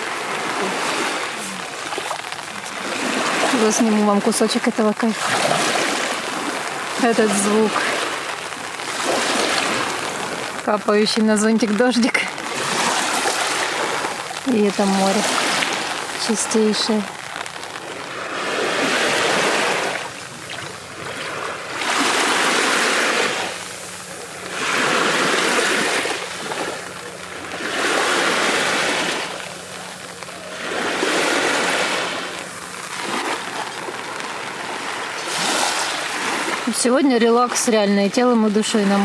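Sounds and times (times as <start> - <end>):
sea waves breaking on sand: 0.0 - 39.0.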